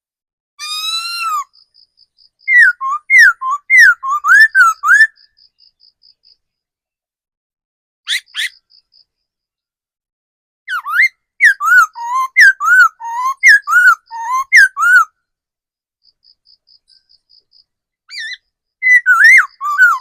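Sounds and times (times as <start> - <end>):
bird whistled song: 0.6 - 5.8, 8.1 - 8.9, 10.7 - 15.2, 18.1 - 20.0.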